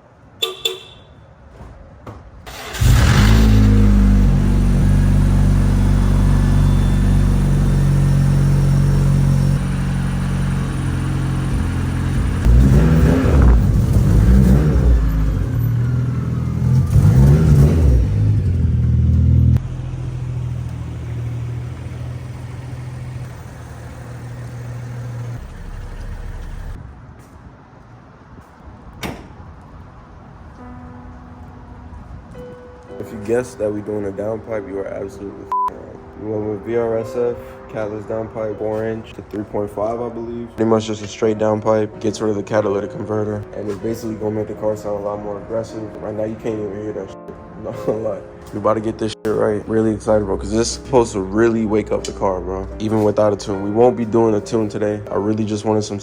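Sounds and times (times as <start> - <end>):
car engine revving and idling: 2.5 - 26.8.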